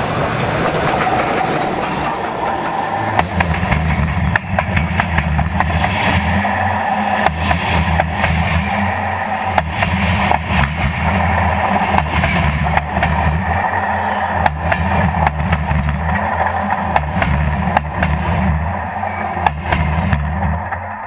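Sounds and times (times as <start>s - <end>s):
railway carriages rumbling overhead: 0.0s - 21.0s
wheel clicks over rail joints: 0.1s - 21.0s.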